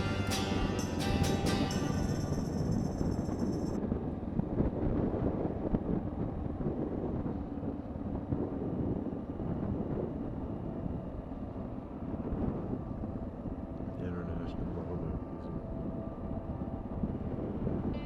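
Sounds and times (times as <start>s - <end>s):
motorcycle engine running: 0.0s - 3.8s
wind buffeting microphone: 0.0s - 18.0s.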